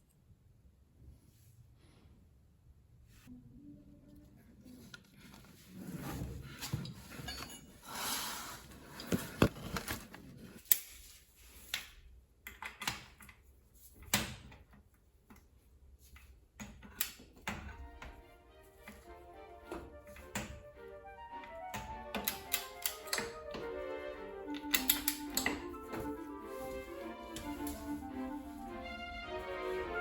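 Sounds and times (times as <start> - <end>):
metal tools clinking: 6.7 - 8.0
background music: 17.7 - 30.0.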